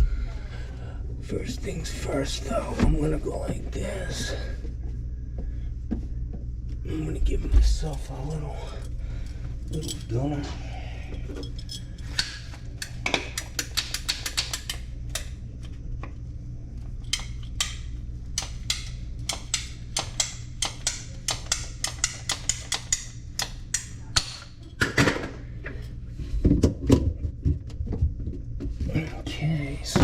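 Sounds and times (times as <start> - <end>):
sharp clicks and light taps: 13.4 - 15.3.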